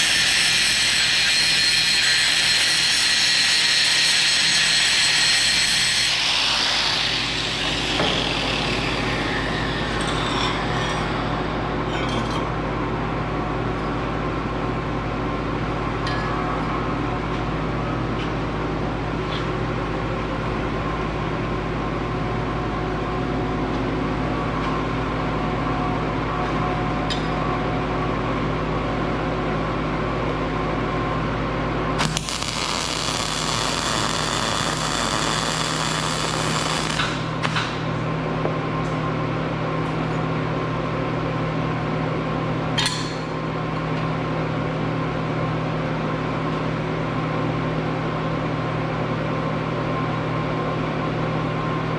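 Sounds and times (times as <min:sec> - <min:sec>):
power tool working metal: 0:00.0 - 0:12.4, 0:32.0 - 0:37.9
steady hum: 0:06.1 - 0:39.8.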